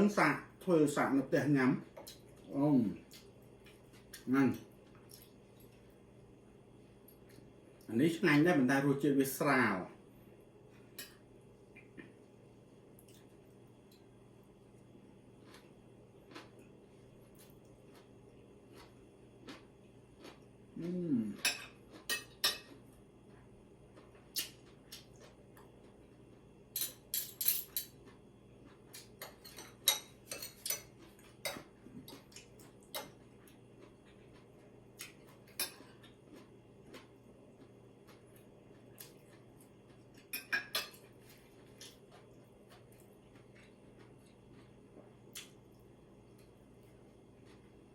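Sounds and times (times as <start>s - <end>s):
cutlery clinking on plates: 26.8s - 28.0s, 29.1s - 31.7s, 40.3s - 41.0s.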